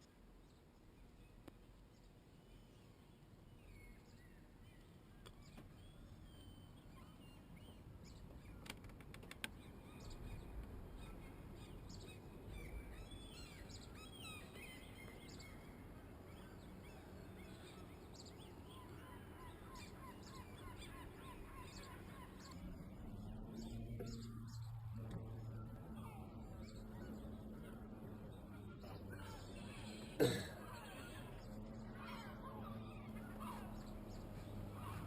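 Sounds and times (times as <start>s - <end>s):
faint bird calls: 3.6s - 35.0s
steady low rumble: 9.6s - 35.0s.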